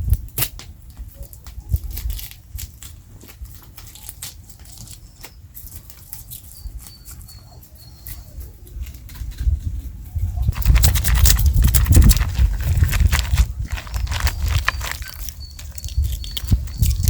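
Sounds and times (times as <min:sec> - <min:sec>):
wood fire crackling: 0:10.5 - 0:17.0.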